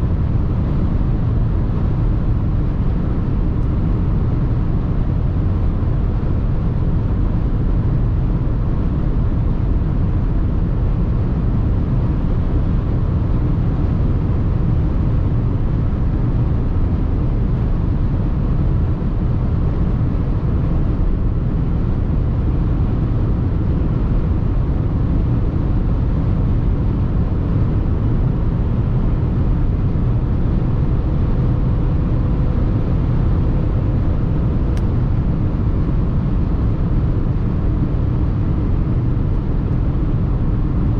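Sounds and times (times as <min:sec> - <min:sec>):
diesel engine running: 0:00.0 - 0:40.9
faint click: 0:34.7 - 0:34.9.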